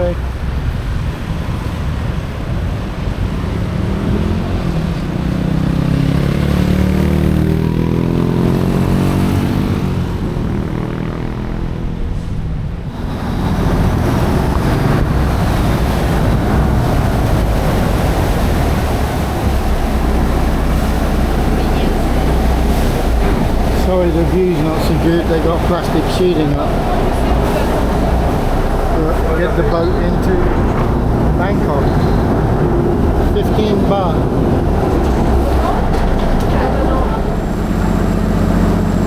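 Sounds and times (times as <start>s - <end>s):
rushing water: 0.0s - 39.0s
boat engine running: 12.8s - 39.0s.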